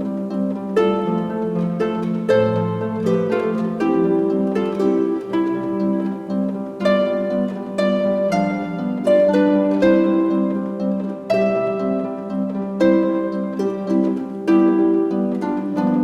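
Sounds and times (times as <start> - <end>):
plucked string music: 0.0 - 16.0.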